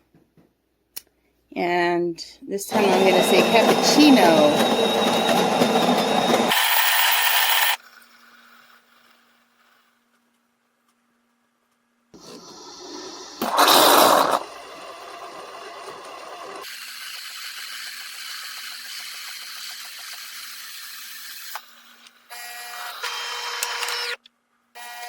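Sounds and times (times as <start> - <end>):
espresso machine motor noise: 2.7 - 9.0, 12.2 - 21.5.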